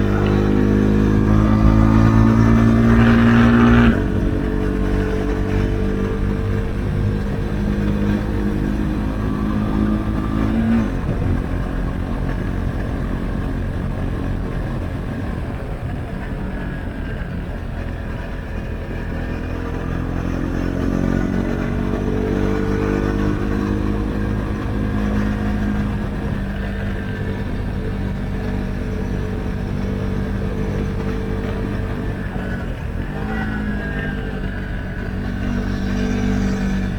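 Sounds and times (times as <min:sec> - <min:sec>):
steady low rumble: 0:00.0 - 0:20.4
motorcycle engine running: 0:00.0 - 0:36.9.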